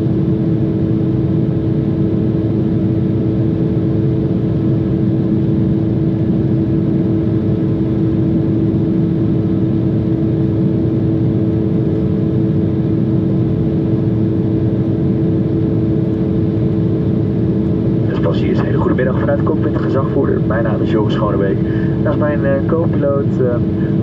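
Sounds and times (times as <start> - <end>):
engine and airflow rush: 14.5 - 24.0
steady hums: 15.7 - 24.0.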